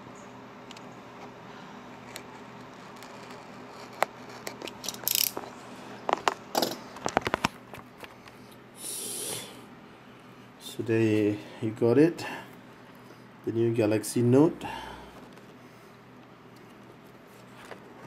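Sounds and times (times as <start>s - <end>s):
cardboard and plastic rustling: 16.5s - 18.0s.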